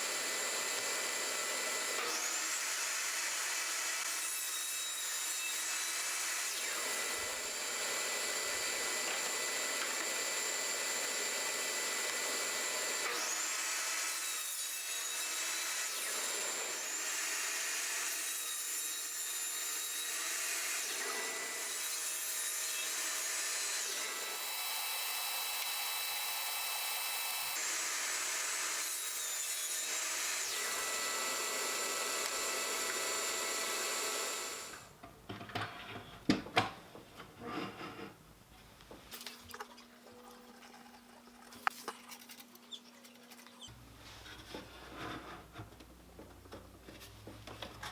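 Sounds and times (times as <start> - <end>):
wood being cut or sanded: 20.8 - 34.8
power tool motor whine: 22.9 - 34.8.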